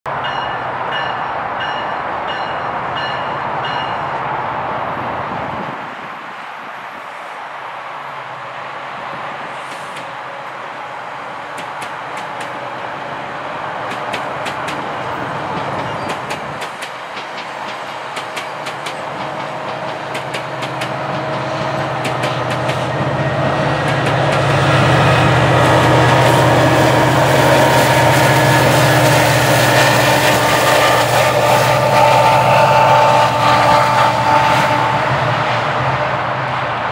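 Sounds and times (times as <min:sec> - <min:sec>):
train rumble: 0:00.1 - 0:36.9
train wheels clicking over joints: 0:11.5 - 0:12.6, 0:13.8 - 0:30.5.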